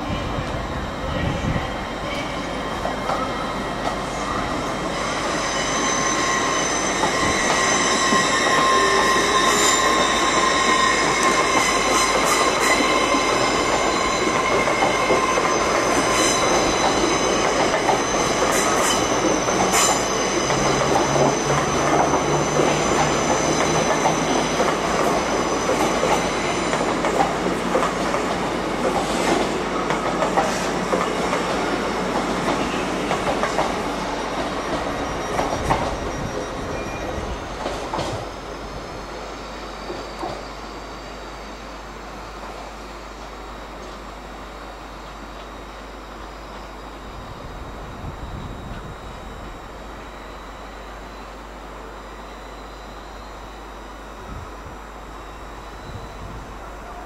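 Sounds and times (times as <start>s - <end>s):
train running on track: 0.0s - 57.0s
high-pitched wheel squeal: 3.2s - 27.0s, 33.8s - 37.9s.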